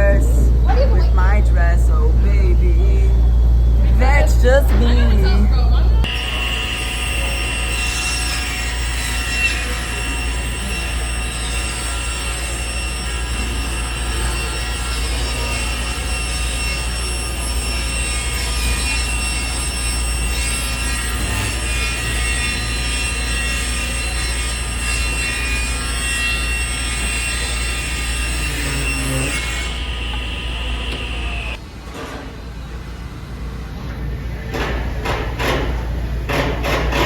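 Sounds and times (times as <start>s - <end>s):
machine running with low hum: 0.0s - 31.6s
steady high tones: 6.0s - 31.6s.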